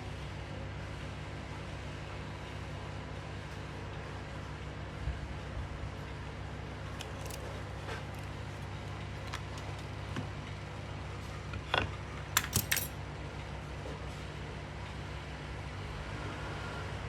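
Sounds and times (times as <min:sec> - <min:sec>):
metal clock parts clicking: 0:12.4 - 0:12.9
metallic clinks: 0:12.4 - 0:13.0.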